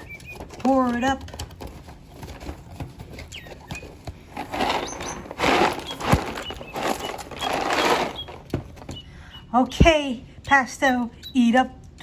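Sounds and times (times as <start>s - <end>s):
crackers clicking: 4.2s - 9.0s
crackers rattling into a dish: 4.3s - 8.9s.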